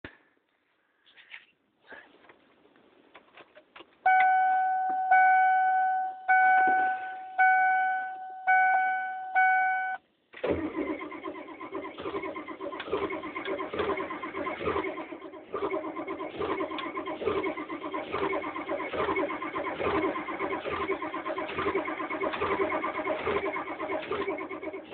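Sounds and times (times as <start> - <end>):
dashboard warning chime: 4.0 - 10.0
diesel starter cranking: 10.4 - 24.9.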